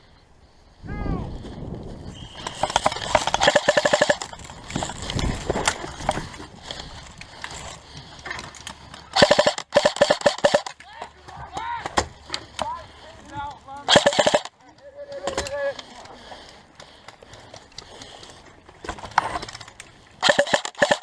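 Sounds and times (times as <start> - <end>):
airsoft rifle automatic bursts: 2.4 - 5.0, 9.1 - 10.8, 13.9 - 14.5, 20.2 - 21.0.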